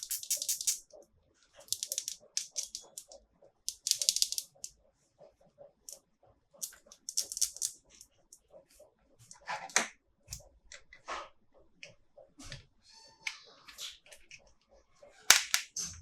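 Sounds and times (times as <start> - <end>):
plastic clicking and crackling: 1.6 - 4.8, 6.6 - 8.5.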